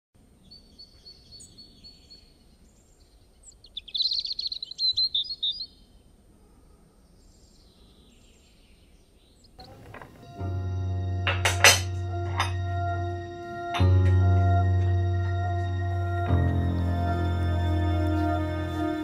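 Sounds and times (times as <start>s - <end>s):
small birds chirping: 0.4s - 10.4s.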